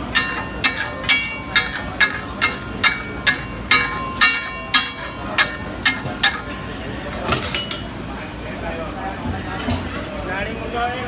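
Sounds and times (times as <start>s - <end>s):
metal spatula clanking on griddle: 0.0s - 8.0s.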